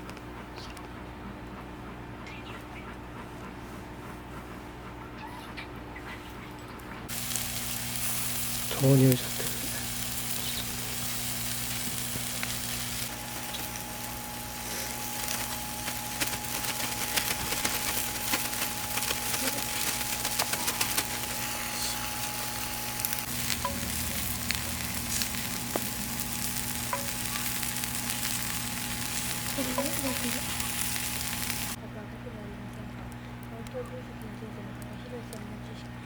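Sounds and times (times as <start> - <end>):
food sizzling in a pot: 7.1 - 31.8.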